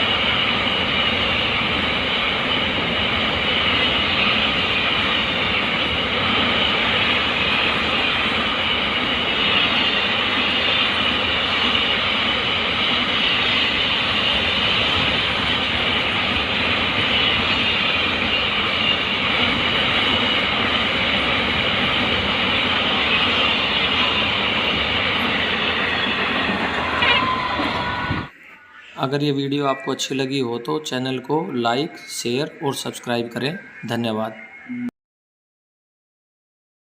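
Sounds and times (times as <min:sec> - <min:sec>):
freight train wheels on rails: 0:00.0 - 0:28.4.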